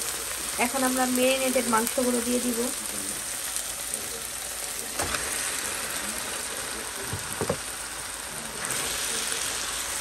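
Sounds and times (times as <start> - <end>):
meat sizzling in a pan: 0.0 - 10.0
knocks against a pan: 7.1 - 7.6.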